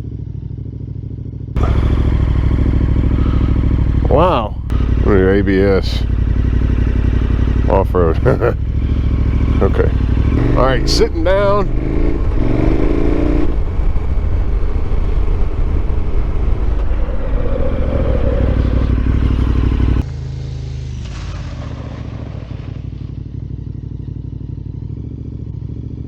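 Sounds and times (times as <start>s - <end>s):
engine idling: 0.0s - 26.0s
motorcycle engine accelerating: 0.0s - 26.0s
wind rush: 11.7s - 20.0s.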